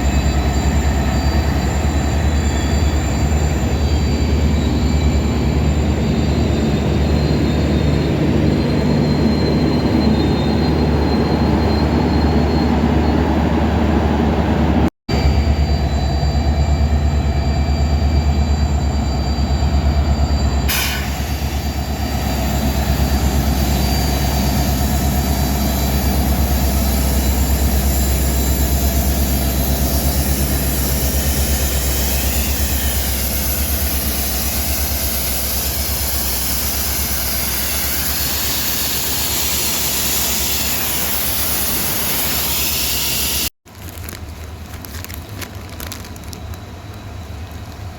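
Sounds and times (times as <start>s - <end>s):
thin high squealing: 0.0s - 13.3s
diesel locomotive engine drone: 0.0s - 47.9s.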